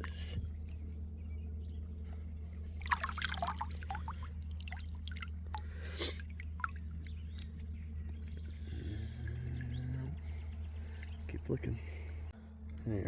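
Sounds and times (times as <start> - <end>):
steady low rumble: 0.0 - 13.0
creek water splashing: 2.8 - 7.6
small splashes and gurgles: 2.8 - 7.6.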